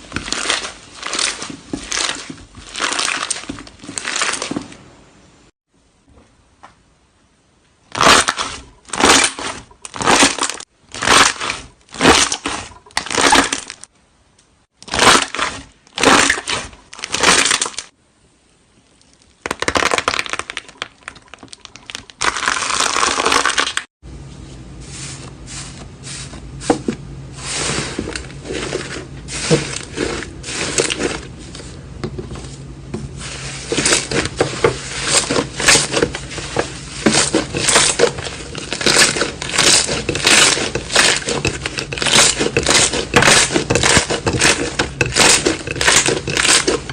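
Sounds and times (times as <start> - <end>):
slime crackling and crunching: 0.0 - 4.7, 7.9 - 13.9, 14.8 - 17.9, 19.0 - 23.9, 28.3 - 31.4, 33.2 - 46.9
small crackles and pops: 18.9 - 23.9.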